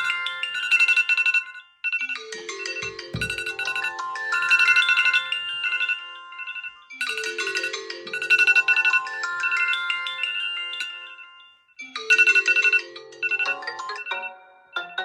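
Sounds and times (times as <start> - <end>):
phone ringtone chiming melody: 5.8 - 11.2, 12.1 - 15.0.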